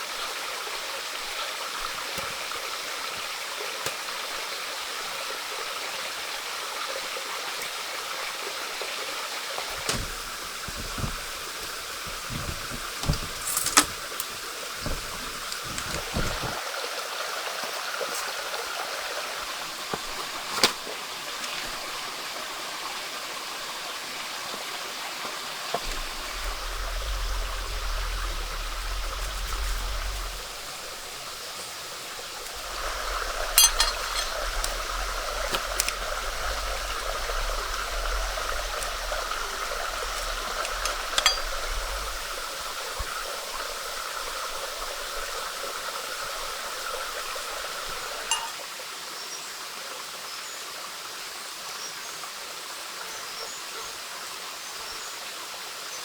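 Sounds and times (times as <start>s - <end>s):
running water rushing: 0.0s - 54.9s
low rumble: 25.8s - 42.9s.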